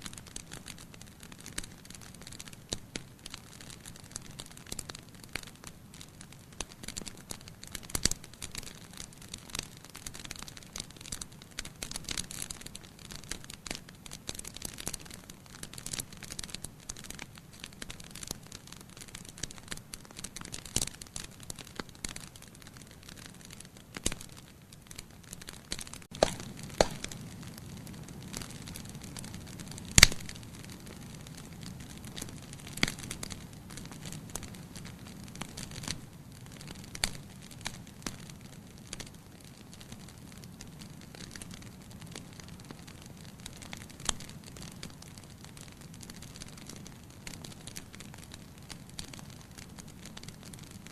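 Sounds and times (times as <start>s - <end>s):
fire snaps: 0.0s - 50.9s
wood fire crackling: 0.0s - 50.9s
low hiss of flames: 22.8s - 38.0s.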